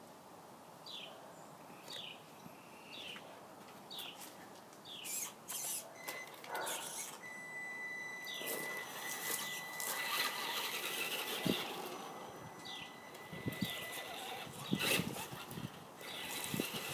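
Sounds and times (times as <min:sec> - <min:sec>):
bird chirping: 0:04.8 - 0:15.0
high-pitched whine: 0:06.9 - 0:15.4.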